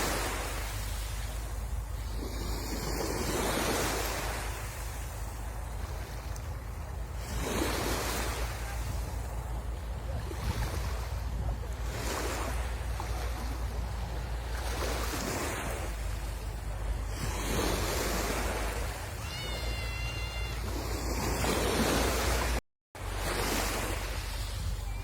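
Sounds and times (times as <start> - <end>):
sea waves breaking on shore: 0.0 - 25.0
brief high-pitched call: 19.1 - 21.1.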